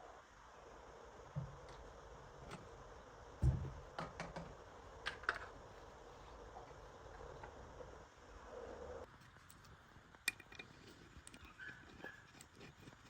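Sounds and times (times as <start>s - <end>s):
dull thump: 3.4s - 4.0s.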